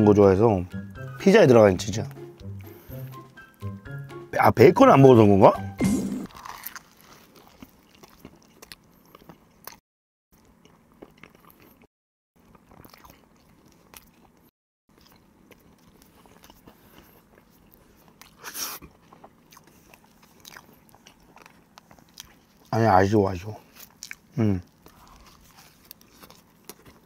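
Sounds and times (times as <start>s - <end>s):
crunching and chewing toast: 6.3s - 9.8s, 10.4s - 27.0s.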